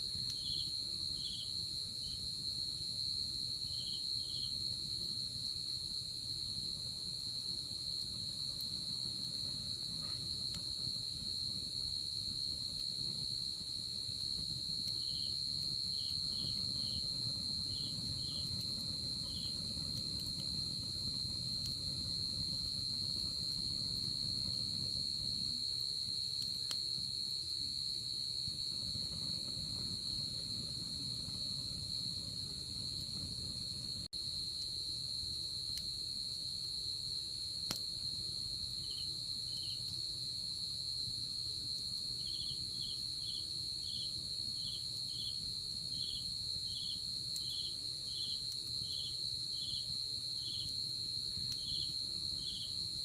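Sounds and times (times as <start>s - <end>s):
crickets trilling: 0.0s - 53.0s
insect chirps: 0.0s - 53.0s
campfire pops: 8.0s - 27.7s, 37.6s - 38.0s.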